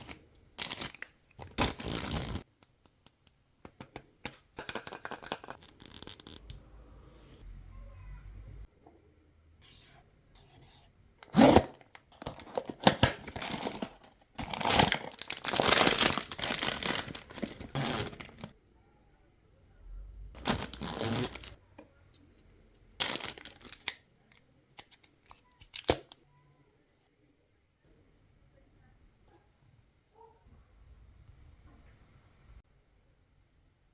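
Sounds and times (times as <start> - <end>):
packaging tearing and rustling: 0.0 - 2.4, 4.7 - 6.4, 11.3 - 18.5, 20.4 - 21.6, 23.0 - 23.9.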